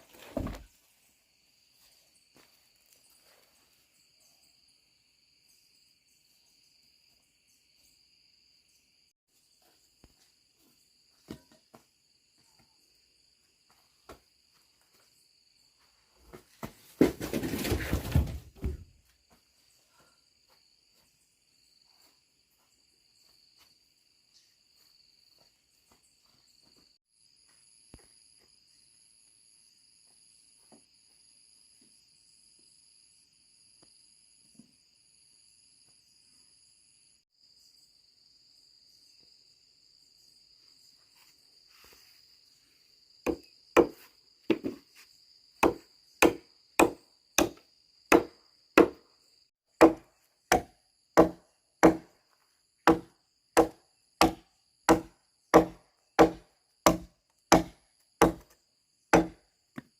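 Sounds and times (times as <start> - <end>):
insects chirring: 17.7 - 59.9
hand tool striking wood: 43.3 - 44.8, 45.6 - 49.0, 49.8 - 52.2, 52.8 - 59.9.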